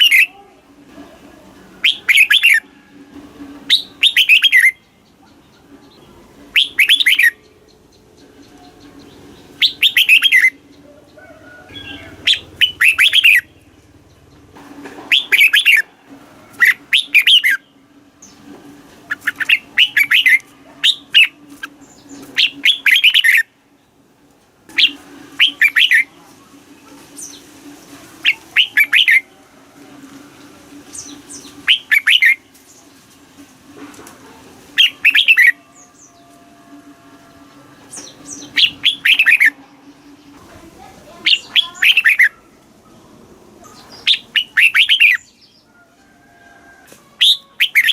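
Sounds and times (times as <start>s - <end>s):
bird singing whistled phrases: 0.0s - 0.3s, 1.8s - 2.6s, 3.7s - 4.8s, 6.5s - 7.4s, 9.6s - 10.6s, 11.7s - 13.5s, 15.1s - 15.8s, 16.6s - 17.6s, 19.1s - 21.4s, 22.4s - 23.5s, 24.8s - 26.1s, 28.2s - 29.3s, 31.0s - 32.4s, 34.8s - 36.2s, 38.0s - 39.6s, 41.3s - 42.4s, 44.0s - 45.4s, 47.2s - 47.9s.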